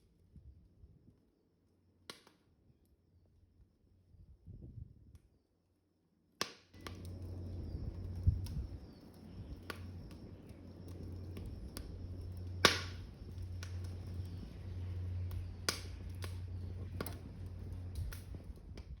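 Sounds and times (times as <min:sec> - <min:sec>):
wood crackling pops: 0:06.4 - 0:19.0
wood stove low rumble: 0:06.8 - 0:19.0.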